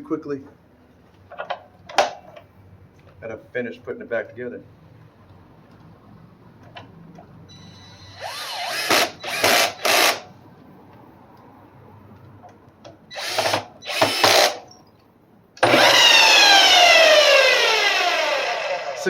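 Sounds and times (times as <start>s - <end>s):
power tool motor running: 8.2s - 10.3s, 13.1s - 14.6s, 15.6s - 19.0s.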